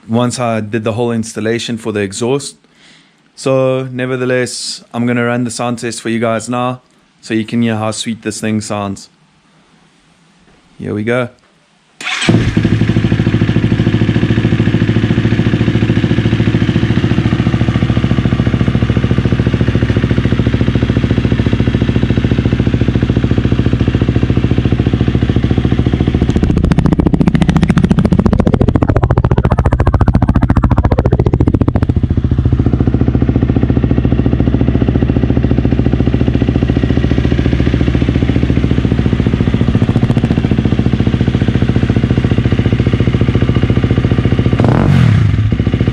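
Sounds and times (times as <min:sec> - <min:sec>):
dirt bike engine idling and revving: 0:12.1 - 0:45.9.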